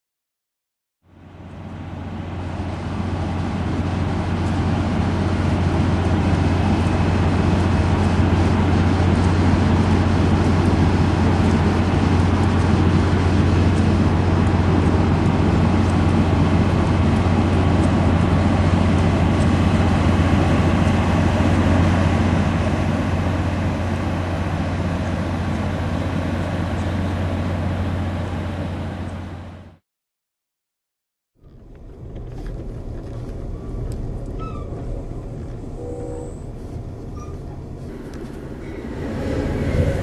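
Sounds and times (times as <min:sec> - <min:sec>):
moving passenger train rumble: 0:01.0 - 0:29.8, 0:31.4 - 0:40.0.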